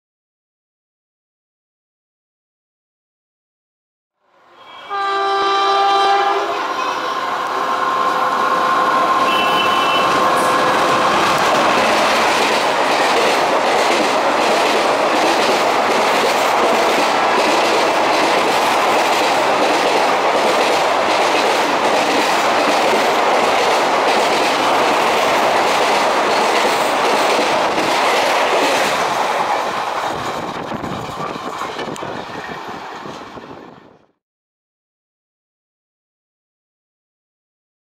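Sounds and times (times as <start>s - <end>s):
train coaches rushing past: 4.3s - 34.0s
locomotive horn: 4.4s - 8.1s, 9.0s - 10.8s.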